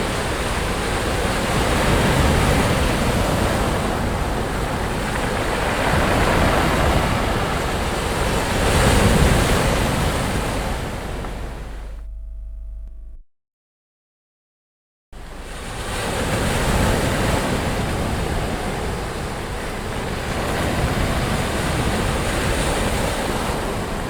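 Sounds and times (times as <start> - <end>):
sea waves breaking on a beach: 0.0 - 11.9, 15.2 - 24.0
faint low hum: 10.8 - 13.2.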